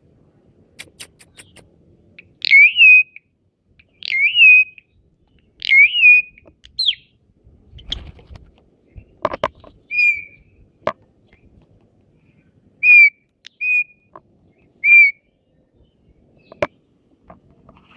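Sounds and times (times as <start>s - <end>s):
bird clicks: 0.8s - 1.6s, 13.4s - 13.6s
bird whistling: 0.8s - 1.6s, 2.4s - 3.2s, 4.0s - 4.8s, 5.6s - 7.1s, 9.9s - 10.4s, 12.8s - 14.0s, 14.8s - 15.2s.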